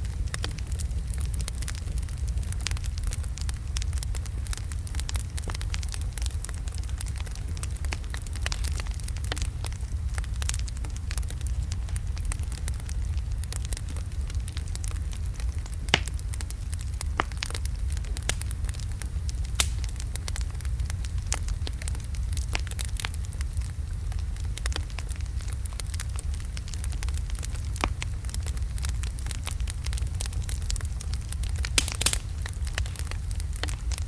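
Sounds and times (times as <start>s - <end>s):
logs burning in fireplace: 0.0s - 34.0s.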